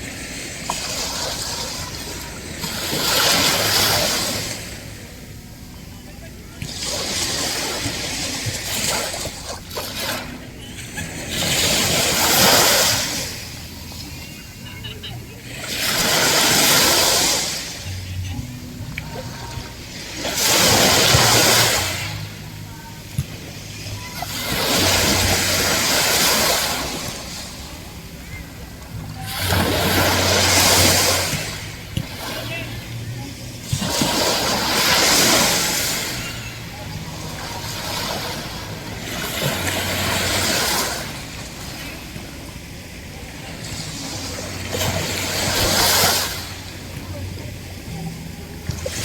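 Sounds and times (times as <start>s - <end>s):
low steady hum: 0.0s - 49.0s
ocean waves breaking: 0.0s - 49.0s.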